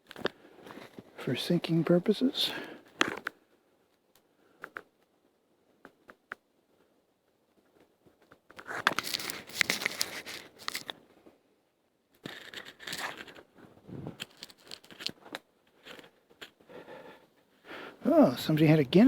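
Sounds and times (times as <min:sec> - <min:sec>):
twigs breaking and tearing: 0:08.7 - 0:11.0, 0:14.2 - 0:16.6.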